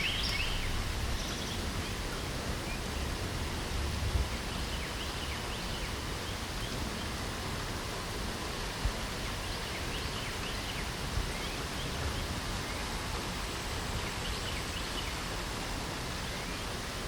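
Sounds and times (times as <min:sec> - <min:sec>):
small birds chirping: 0:00.0 - 0:03.2, 0:04.2 - 0:07.2, 0:09.1 - 0:15.4
light rain hiss: 0:00.0 - 0:17.0.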